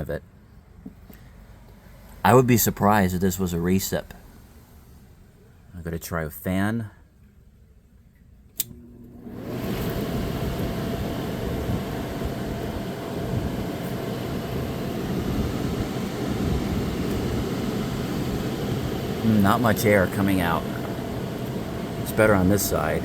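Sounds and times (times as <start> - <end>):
air conditioner fan running: 8.4 - 23.0
air conditioner switch click: 8.5 - 8.8, 9.4 - 23.0.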